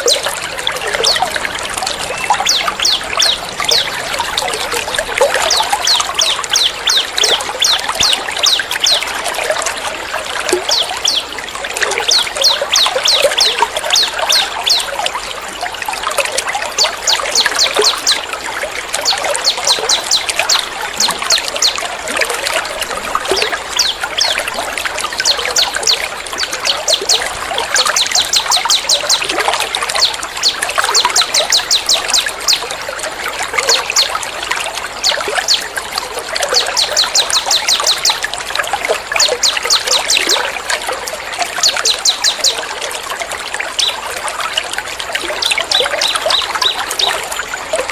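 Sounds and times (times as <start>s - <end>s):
songbird calls: 0.0s - 9.2s, 10.5s - 15.0s, 19.0s - 32.6s, 36.4s - 38.3s
trickle of running water: 0.0s - 47.9s.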